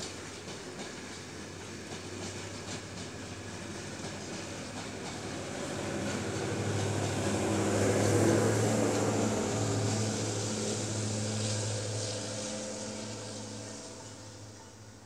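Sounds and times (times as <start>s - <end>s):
train wheels rumbling on rails: 0.0s - 15.0s
diesel engine drone: 6.5s - 14.5s.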